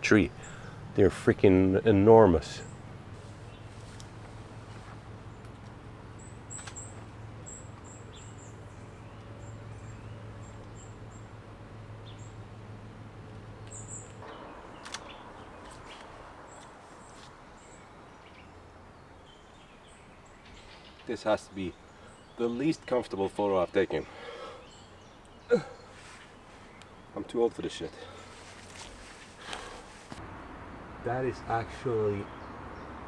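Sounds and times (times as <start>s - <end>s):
low steady hum: 0.0s - 20.9s
small bird chirping: 2.6s - 4.4s, 5.1s - 12.6s, 13.4s - 23.8s.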